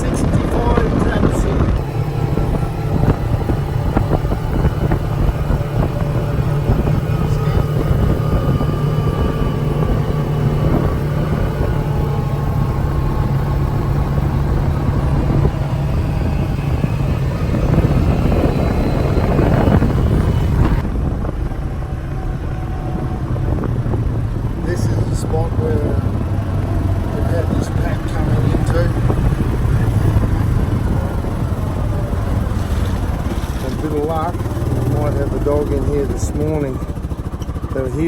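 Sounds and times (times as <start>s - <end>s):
vehicle engine and road rumble: 0.0s - 38.0s.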